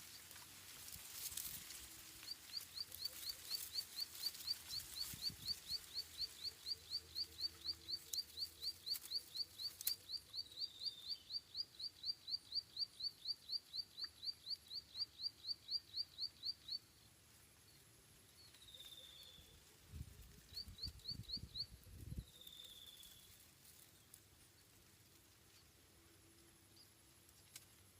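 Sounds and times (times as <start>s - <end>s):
small bird chirping: 1.2s - 27.9s.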